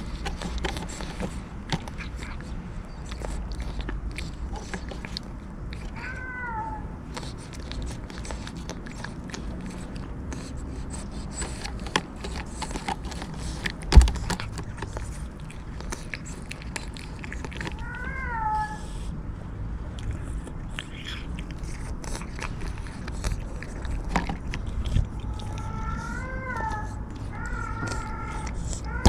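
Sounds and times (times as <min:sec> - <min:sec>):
cat meowing: 0:05.8 - 0:07.0, 0:17.7 - 0:19.0, 0:25.3 - 0:29.0.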